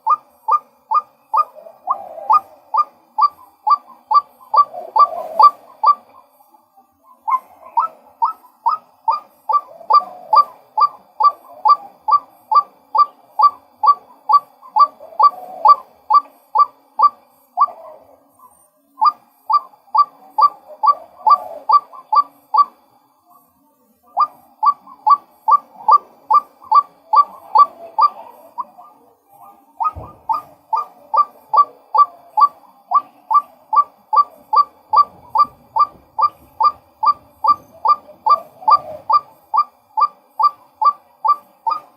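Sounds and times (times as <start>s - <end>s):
waterhen calling: 0.0s - 6.0s, 19.0s - 22.7s, 29.8s - 41.9s
low thump: 29.9s - 30.3s.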